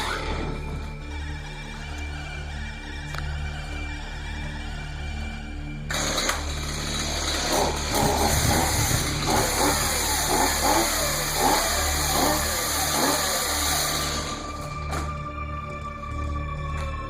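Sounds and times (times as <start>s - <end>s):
pulsing musical score: 0.0s - 17.0s
chainsaw revving: 5.9s - 14.5s.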